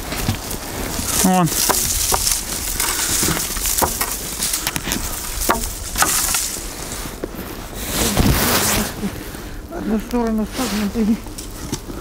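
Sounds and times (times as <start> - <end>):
dry branches crackling and snapping: 0.0 - 12.0
wood knocking: 1.5 - 6.5.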